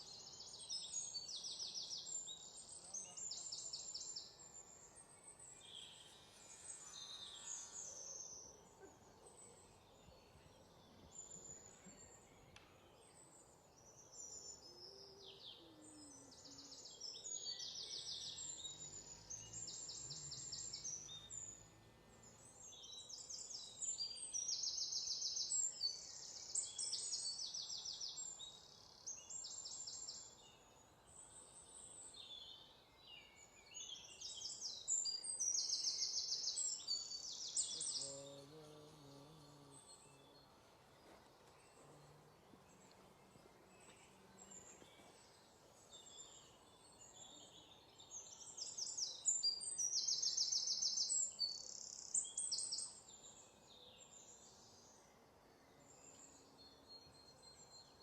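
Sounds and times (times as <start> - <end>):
bird chirps: 0.0 - 58.0.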